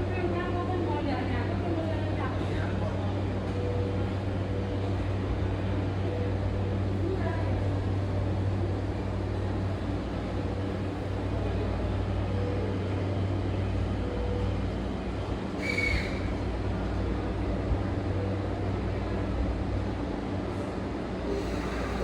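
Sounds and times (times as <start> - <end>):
electric train hum: 0.0 - 22.0.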